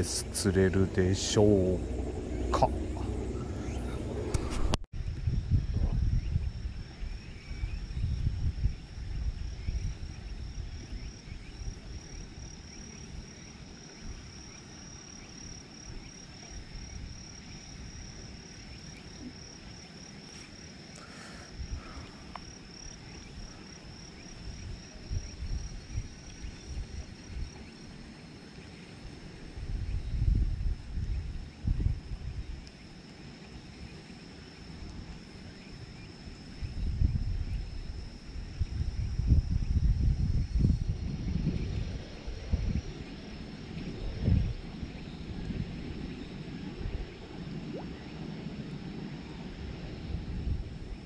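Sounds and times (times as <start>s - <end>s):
low rumbling buffets: 0.0s - 13.2s
insects trilling: 0.0s - 51.0s.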